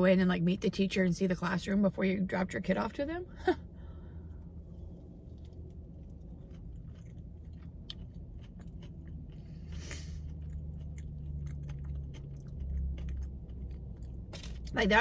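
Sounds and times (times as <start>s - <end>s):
person chewing crunchy food: 3.9s - 14.7s.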